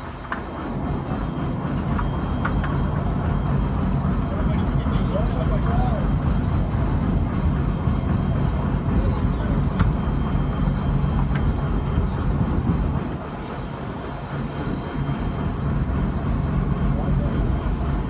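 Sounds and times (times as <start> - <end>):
diesel engine humming: 0.0 - 18.0.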